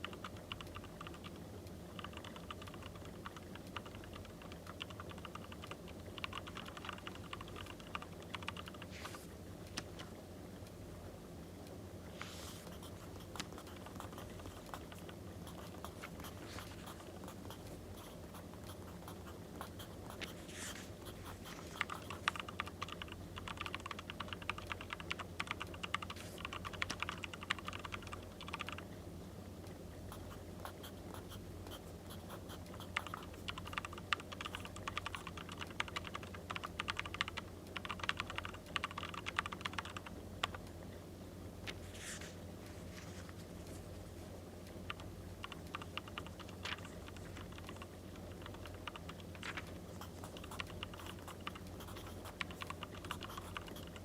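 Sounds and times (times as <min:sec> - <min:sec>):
pen scratching on paper: 0:12.2 - 0:22.4, 0:50.0 - 0:54.0.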